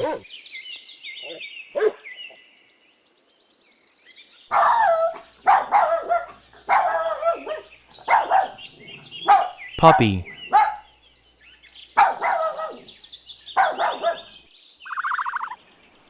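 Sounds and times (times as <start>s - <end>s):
dog barking: 0.0s - 0.2s, 5.5s - 8.6s, 9.3s - 9.6s, 13.6s - 14.3s.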